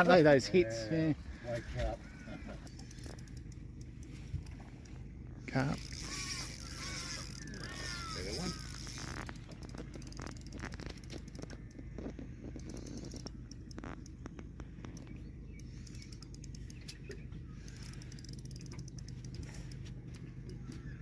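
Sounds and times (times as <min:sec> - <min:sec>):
steady low hum: 0:00.0 - 0:21.0
fishing reel clicks and scrapes: 0:01.4 - 0:04.7, 0:05.6 - 0:14.2, 0:14.9 - 0:17.0, 0:17.6 - 0:19.9.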